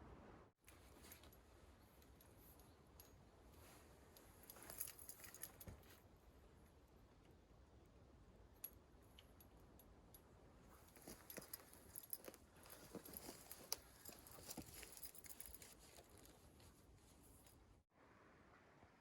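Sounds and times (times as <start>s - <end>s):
light rustles: 10.7s - 17.6s.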